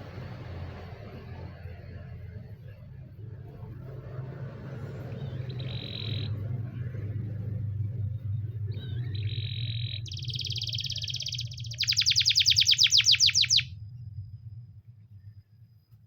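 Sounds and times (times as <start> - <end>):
low steady hum: 0.0 - 16.0
canary singing: 5.0 - 6.6, 8.4 - 14.0.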